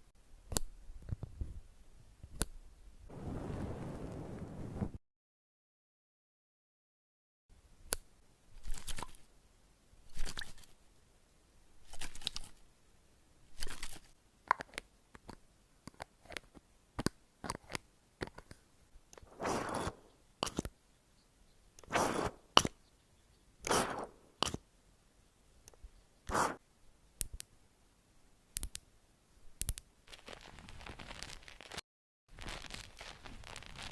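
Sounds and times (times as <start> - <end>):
crisp scratchy strokes: 19.2 - 20.6, 21.9 - 22.6, 23.6 - 24.6, 26.3 - 26.6, 30.1 - 33.9.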